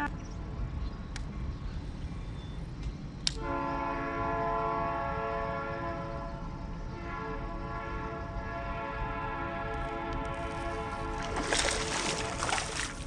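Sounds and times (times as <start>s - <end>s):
train horn chord: 3.4s - 12.5s.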